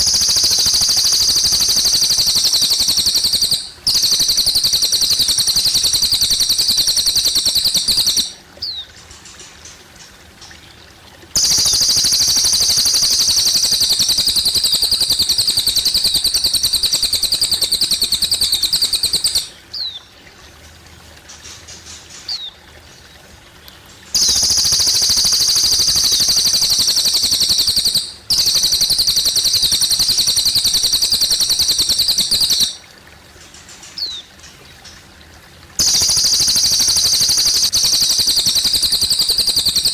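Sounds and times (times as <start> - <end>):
bird singing rapid trills: 0.0 - 9.4, 11.4 - 20.0, 24.2 - 32.8, 35.8 - 39.9
trickling water: 0.0 - 39.9.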